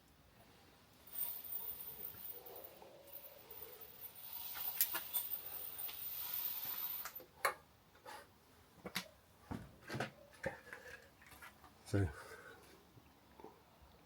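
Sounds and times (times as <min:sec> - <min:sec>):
hiss: 0:01.1 - 0:07.2.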